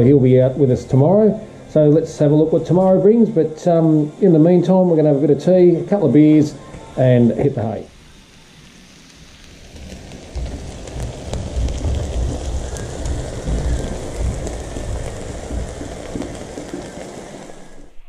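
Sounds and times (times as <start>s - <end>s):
meat sizzling on hot plate: 0.0s - 18.0s
low fluctuating rumble: 7.6s - 18.0s.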